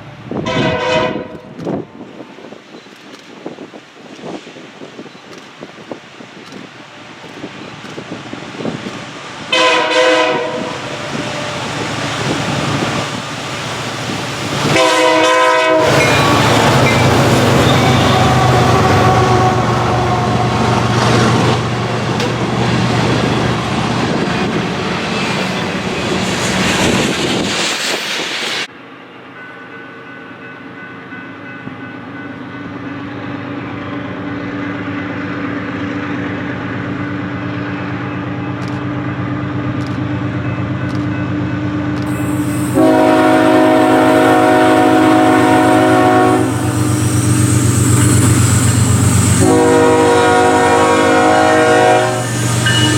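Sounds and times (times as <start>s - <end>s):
train wheels rolling: 0.0s - 28.7s, 31.5s - 52.9s
diesel locomotive approaching: 0.0s - 52.9s
multi-chime air horn blast: 42.1s - 47.1s, 49.4s - 52.9s.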